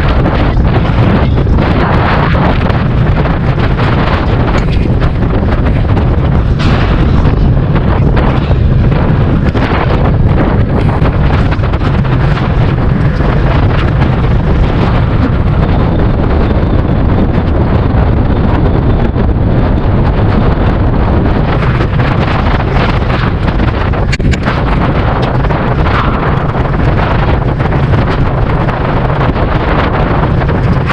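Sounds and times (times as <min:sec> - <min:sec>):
wind buffeting microphone: 0:00.0 - 0:30.9.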